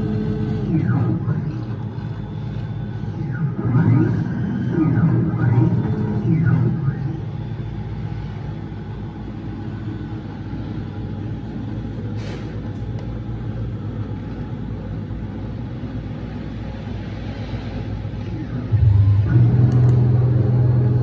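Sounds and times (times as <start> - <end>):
cnc machine humming: 0.0 - 21.0.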